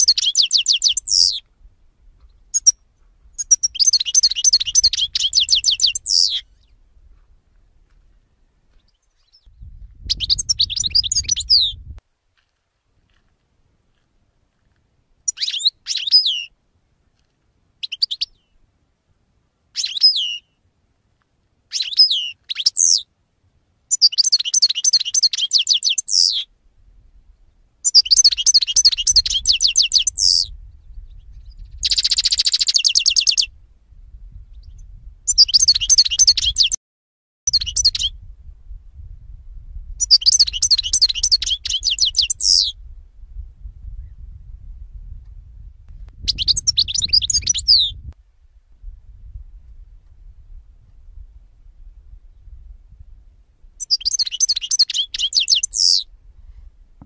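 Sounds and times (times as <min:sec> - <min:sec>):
songbirds singing: 0:00.0 - 0:12.0, 0:15.2 - 0:16.6, 0:17.8 - 0:18.6, 0:19.7 - 0:20.6, 0:21.4 - 0:23.1, 0:23.9 - 0:26.5, 0:27.3 - 0:33.6, 0:34.4 - 0:36.8, 0:37.5 - 0:38.2, 0:40.0 - 0:42.8, 0:46.1 - 0:48.1, 0:53.8 - 0:56.1.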